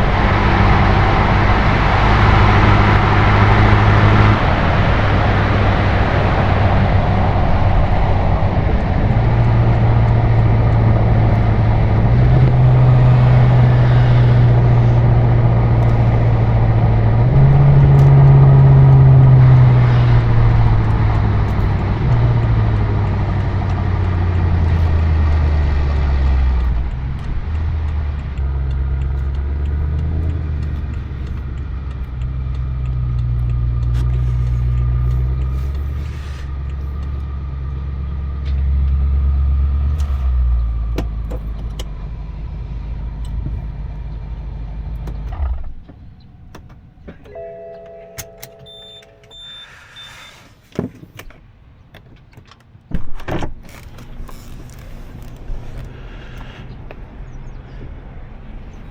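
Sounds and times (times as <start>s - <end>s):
car engine rumbling at idle: 0.0s - 49.6s, 53.7s - 58.9s
short electronic chime: 47.3s - 50.3s
high beep: 47.3s - 50.4s.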